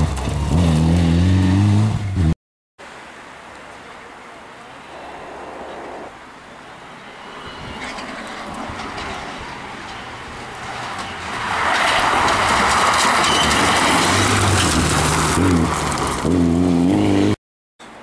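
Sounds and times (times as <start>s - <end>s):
rally car passing at speed: 10.8s - 17.4s.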